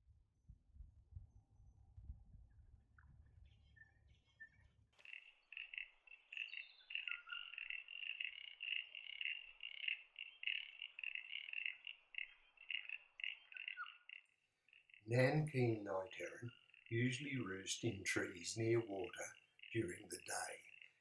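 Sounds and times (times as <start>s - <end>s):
frogs calling in chorus: 5.0s - 18.0s, 18.7s - 21.0s.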